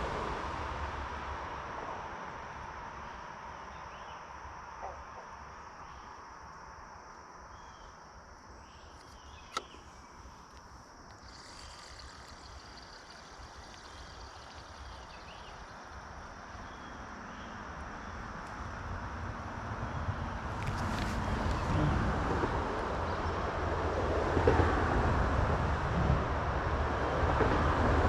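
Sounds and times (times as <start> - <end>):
high insect drone: 5.4 - 23.5
sharp click: 9.0 - 9.9.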